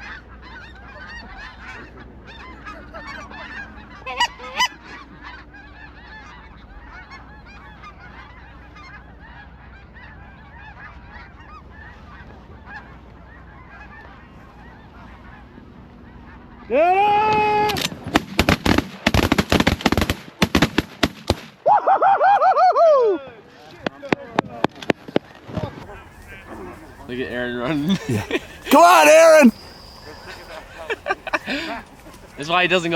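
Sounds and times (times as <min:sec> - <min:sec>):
flock of geese honking: 0:00.0 - 0:17.4, 0:25.3 - 0:32.9.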